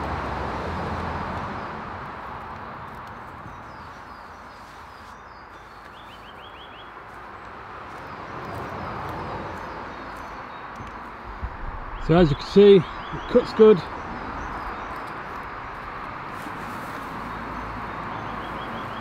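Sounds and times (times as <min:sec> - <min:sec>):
outdoor background noise: 0:00.0 - 0:19.0
bird chirping: 0:03.5 - 0:07.0, 0:07.9 - 0:16.0, 0:17.0 - 0:19.0.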